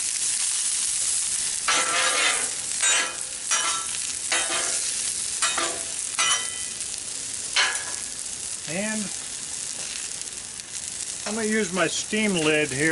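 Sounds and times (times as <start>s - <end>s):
vegetables sizzling on a griddle: 0.0s - 12.9s
spatula scraping a griddle: 0.3s - 6.8s.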